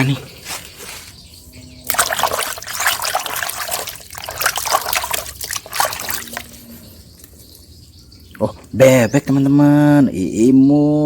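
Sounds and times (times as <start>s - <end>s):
water trickling and splashing: 1.8s - 7.7s.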